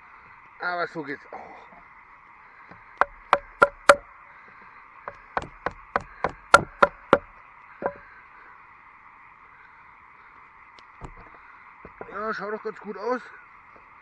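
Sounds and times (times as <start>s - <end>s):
wooden baton knocks on knife: 3.0s - 4.0s.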